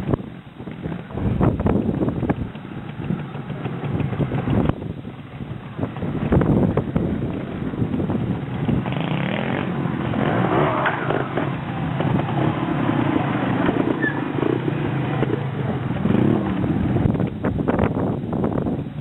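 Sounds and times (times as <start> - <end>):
motorcycle engine revving: 0.7 - 18.7.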